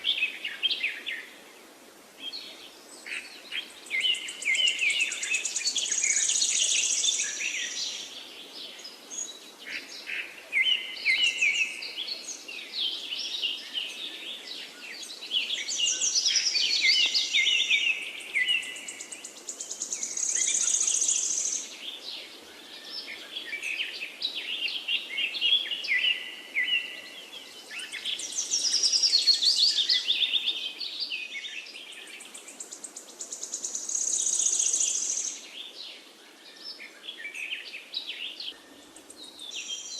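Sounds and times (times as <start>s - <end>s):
birds chirping and singing: 2.2s - 39.9s.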